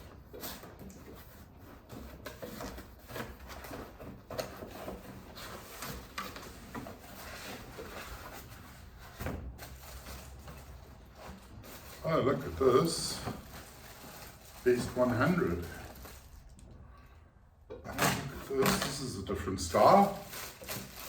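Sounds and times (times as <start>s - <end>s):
cardboard sliding and rubbing: 0.0s - 16.3s.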